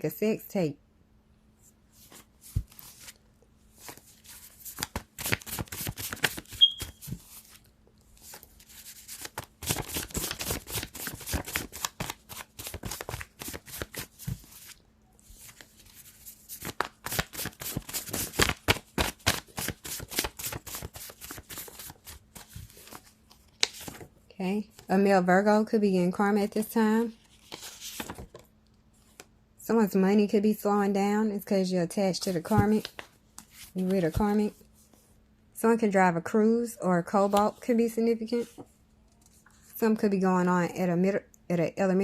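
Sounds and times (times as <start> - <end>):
cards shuffled by hand: 2.0 - 3.2, 3.8 - 24.1, 27.2 - 28.4.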